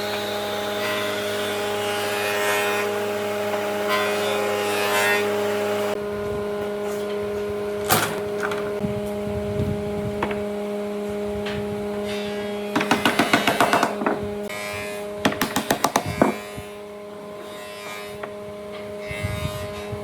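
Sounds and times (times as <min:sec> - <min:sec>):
steady machine hum: 0:00.0 - 0:20.0
workshop power tool running: 0:00.0 - 0:20.0
knocks and clicks of wood: 0:12.8 - 0:14.2, 0:15.2 - 0:16.4.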